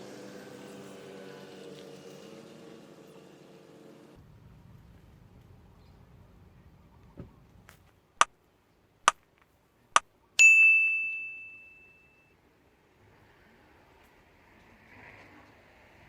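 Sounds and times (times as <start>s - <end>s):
bell-like ding: 10.4s - 12.3s.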